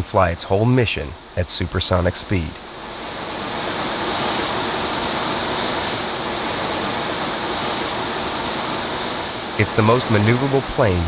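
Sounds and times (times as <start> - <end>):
jet engine rushing: 0.0 - 11.0.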